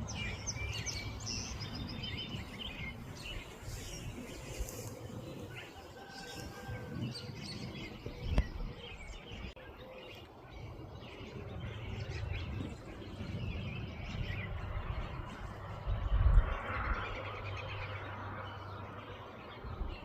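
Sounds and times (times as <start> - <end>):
birds chirping: 0.0 - 20.0
low rumble: 10.6 - 19.0.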